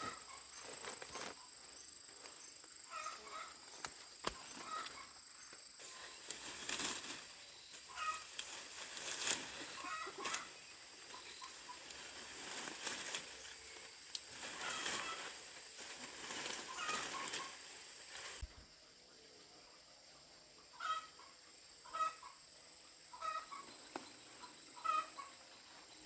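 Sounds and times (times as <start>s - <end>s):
chickens clucking: 2.8s - 18.4s, 20.6s - 22.5s, 23.1s - 26.0s
wings flapping and rustling: 5.8s - 18.5s.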